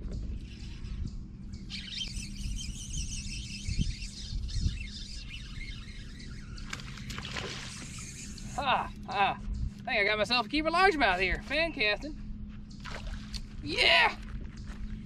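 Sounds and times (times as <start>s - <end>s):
steady low rumble: 0.0s - 15.0s
many birds chirping: 0.1s - 11.9s.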